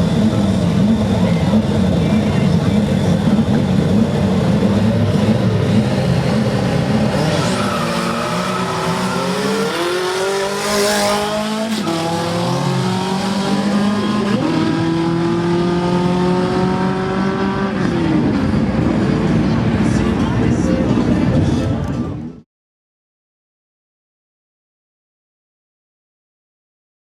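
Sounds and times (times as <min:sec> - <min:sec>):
racing car engines at full throttle: 0:00.0 - 0:22.4
tyre squeal: 0:07.1 - 0:10.2.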